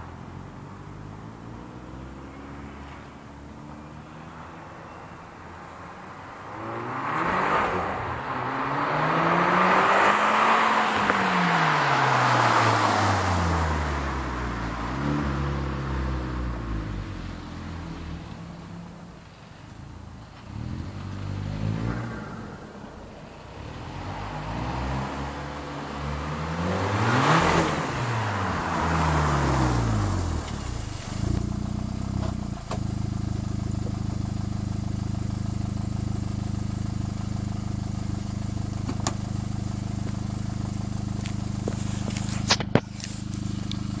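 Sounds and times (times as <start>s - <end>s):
car exhaust revving and idling: 6.4s - 44.0s.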